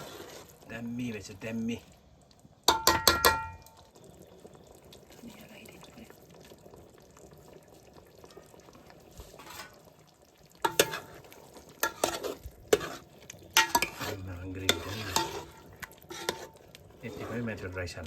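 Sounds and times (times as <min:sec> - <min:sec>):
spoon scraping a cooking pot: 0:00.0 - 0:00.7, 0:09.2 - 0:09.9, 0:10.6 - 0:18.0.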